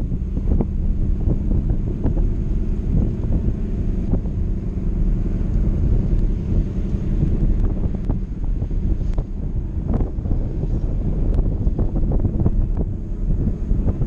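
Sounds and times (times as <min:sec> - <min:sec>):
car engine rumbling: 0:00.0 - 0:14.0
wind buffeting microphone: 0:00.0 - 0:14.0.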